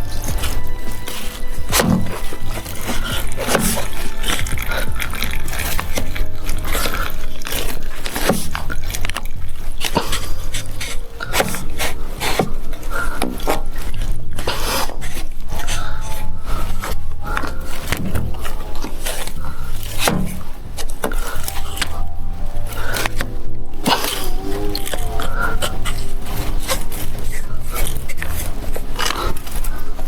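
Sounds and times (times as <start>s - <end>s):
plastic clicking and scraping: 0.0s - 23.3s
low rumble: 0.0s - 30.0s.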